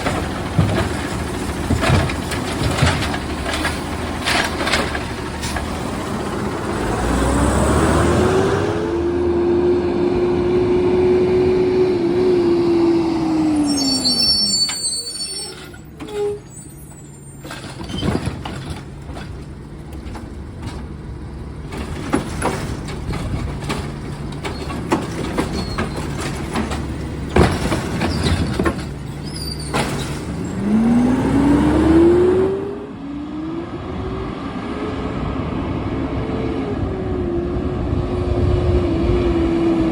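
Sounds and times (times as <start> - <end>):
metallic knocks and clanks: 0.0 - 6.3, 15.5 - 31.1
garbage truck engine revving: 0.0 - 33.8.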